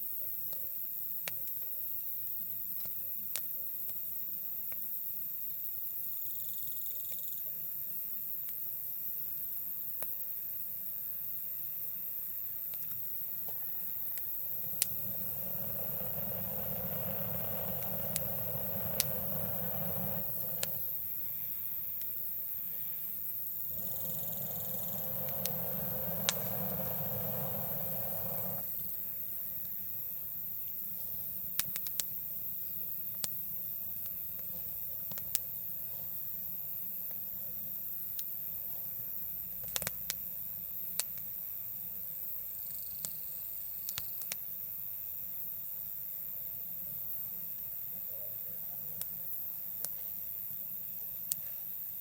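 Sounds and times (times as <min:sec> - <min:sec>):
fire crackling pops: 0:02.6 - 0:05.0, 0:09.8 - 0:52.0
campfire burning: 0:07.7 - 0:52.0.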